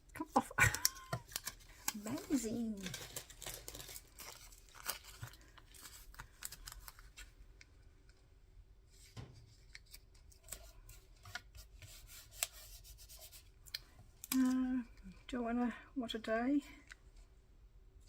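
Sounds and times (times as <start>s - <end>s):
paper clicks and rustles: 0.6s - 7.3s.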